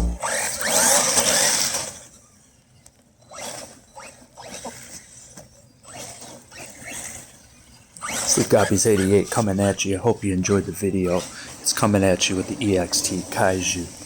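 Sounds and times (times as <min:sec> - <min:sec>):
electric motor whining: 0:00.0 - 0:02.2, 0:03.3 - 0:09.2.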